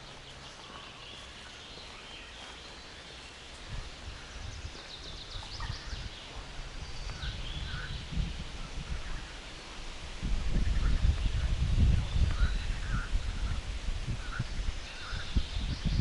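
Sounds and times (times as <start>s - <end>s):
footsteps on forest floor: 0.0s - 7.3s
birds calling: 0.0s - 16.0s.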